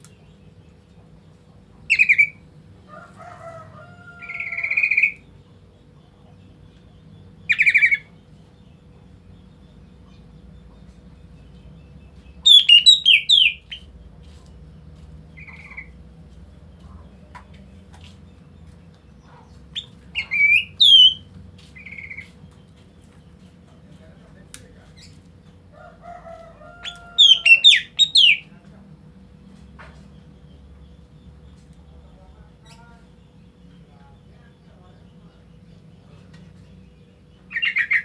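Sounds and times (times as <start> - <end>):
bird calling: 1.8 - 14.4, 18.3 - 23.3, 23.9 - 28.6, 37.2 - 38.0.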